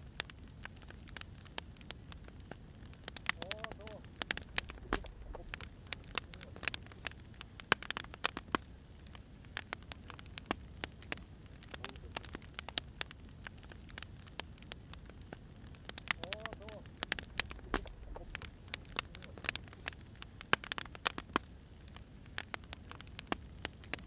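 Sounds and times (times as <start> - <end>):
firewood crackling and popping: 0.0 - 24.0
low steady rumble: 2.0 - 8.0, 8.7 - 20.3.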